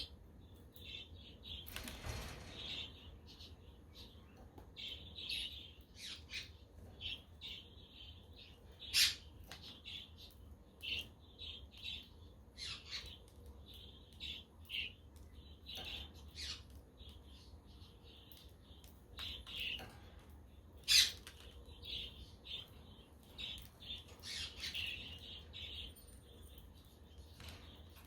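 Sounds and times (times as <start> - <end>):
budgerigars chirping: 8.8 - 11.1.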